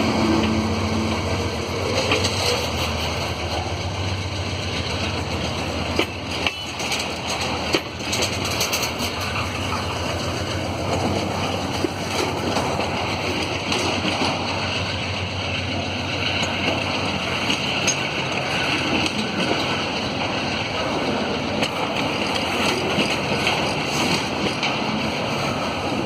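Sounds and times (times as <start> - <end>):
train clanks and knocks: 0.0 - 26.0
train wheels rumbling on rails: 0.0 - 26.0.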